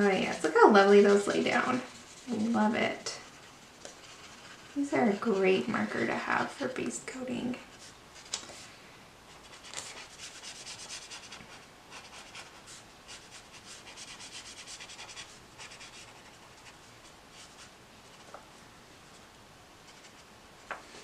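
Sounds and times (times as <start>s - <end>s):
marker scratching on paper: 0.0s - 6.8s, 9.3s - 18.2s, 19.9s - 20.3s.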